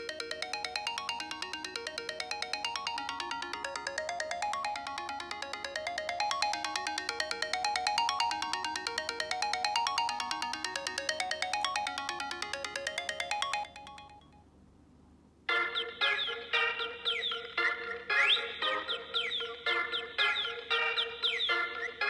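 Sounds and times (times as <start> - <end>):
phone ringtone bell-like arpeggios: 0.0 - 14.2.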